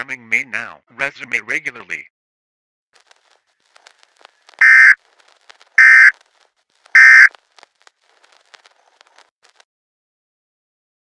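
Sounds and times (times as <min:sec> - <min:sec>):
harsh digital data bursts: 0:04.6 - 0:05.0, 0:05.8 - 0:06.1, 0:07.0 - 0:07.3.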